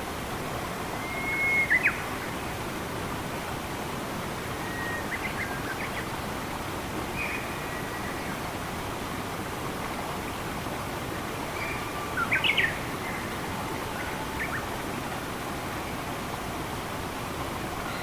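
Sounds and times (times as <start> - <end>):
flowing water: 0.0 - 18.0
whistled bird calls: 1.0 - 2.0, 4.6 - 5.8.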